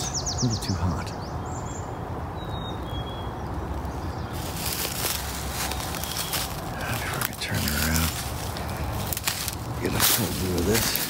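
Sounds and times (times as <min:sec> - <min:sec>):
footsteps on woodland ground cover: 0:03.7 - 0:11.0.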